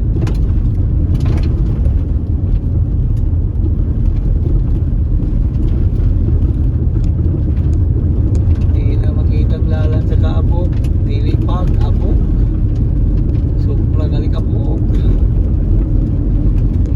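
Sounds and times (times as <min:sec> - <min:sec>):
car tyres and engine rumbling: 0:00.0 - 0:16.9.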